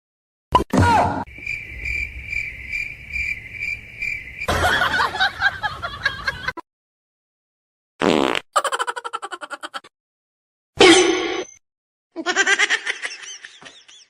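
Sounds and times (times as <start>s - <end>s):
insect chirping: 1.2s - 5.6s.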